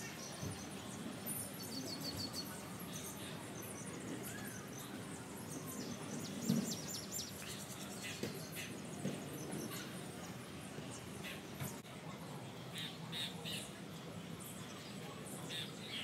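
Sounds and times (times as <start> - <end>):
small birds chirping: 0.0 - 11.8.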